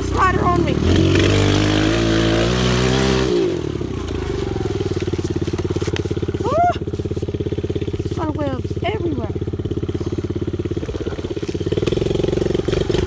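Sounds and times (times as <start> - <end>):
pit bike engine: 0.0 - 13.0.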